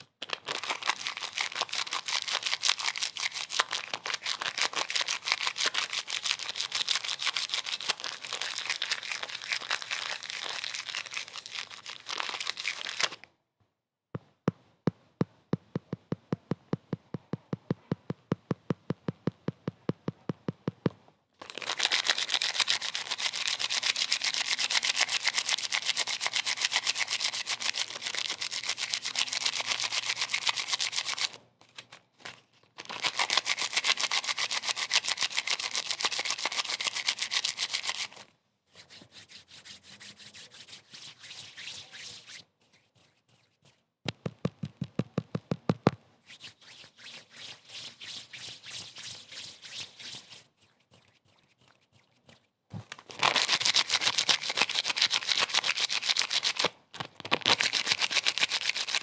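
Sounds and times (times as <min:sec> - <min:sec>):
scratchy rubbing noise: 0:33.0 - 0:56.7.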